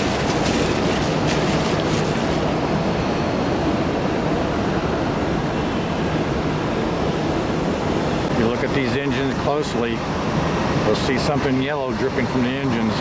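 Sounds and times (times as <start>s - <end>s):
jet engines running: 0.0s - 3.4s.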